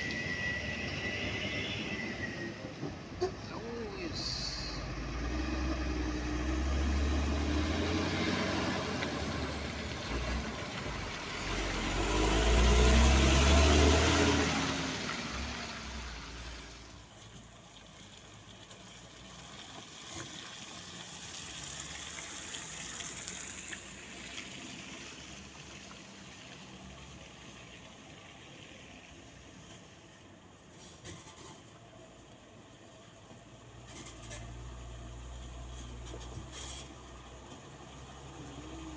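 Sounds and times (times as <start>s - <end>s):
diesel truck passing: 0.0s - 17.2s, 20.4s - 29.2s, 33.7s - 38.9s
faint traffic: 0.0s - 38.9s.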